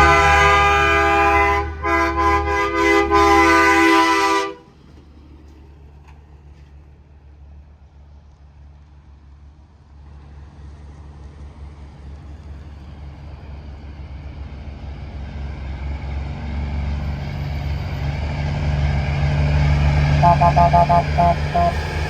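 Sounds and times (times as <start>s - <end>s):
truck engine drone: 15.1s - 22.0s.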